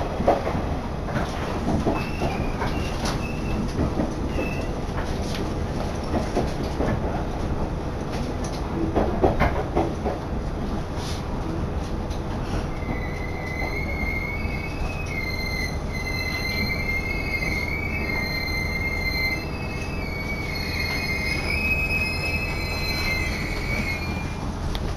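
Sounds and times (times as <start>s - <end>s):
railcar rumbling: 0.0s - 24.9s
wheels and brakes squealing: 1.8s - 4.8s, 12.4s - 24.6s.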